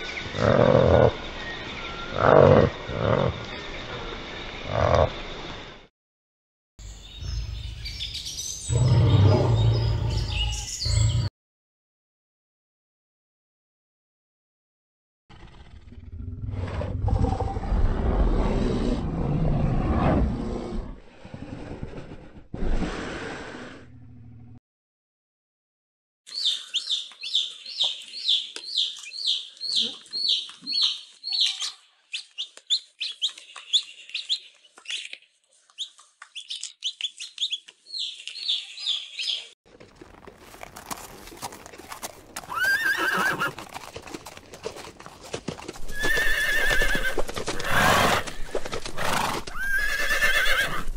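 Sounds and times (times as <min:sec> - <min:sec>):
hooves: 0:39.7 - 0:50.9.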